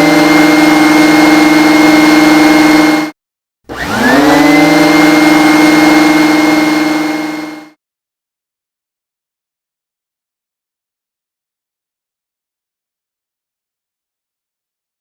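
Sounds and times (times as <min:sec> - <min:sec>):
vacuum cleaner motor running: 0:00.0 - 0:03.1, 0:03.7 - 0:07.8.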